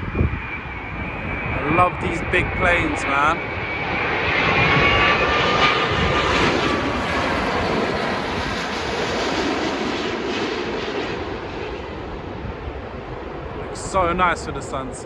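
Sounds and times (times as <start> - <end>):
jet airliner passing low: 0.0 - 15.0.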